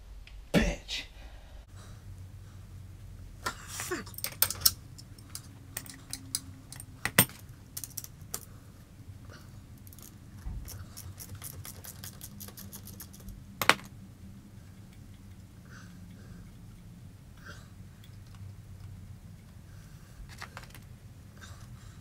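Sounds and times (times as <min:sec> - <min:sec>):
metal tools clicking on metal: 0:04.0 - 0:08.5, 0:09.8 - 0:13.4.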